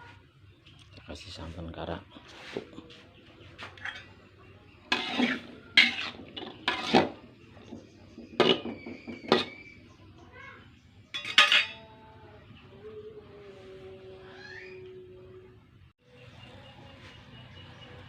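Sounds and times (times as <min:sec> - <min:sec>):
utensil scraping cooking pot: 0:03.7 - 0:09.8, 0:11.1 - 0:11.9.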